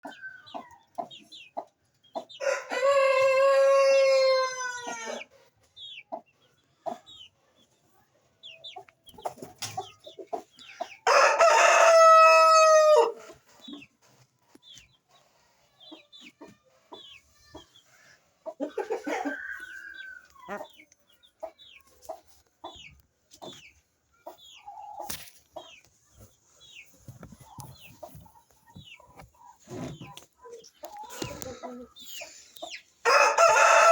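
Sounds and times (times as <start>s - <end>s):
chicks peeping: 0.0s - 33.9s
rooster crowing: 2.4s - 5.1s, 11.1s - 13.2s, 33.0s - 33.9s
hen clucking: 4.6s - 7.4s, 13.1s - 33.9s.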